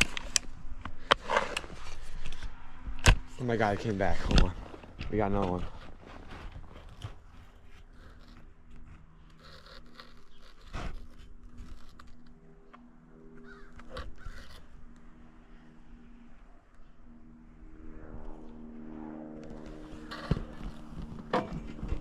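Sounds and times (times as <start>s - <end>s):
rustling and scraping: 0.0s - 14.8s, 19.4s - 22.0s.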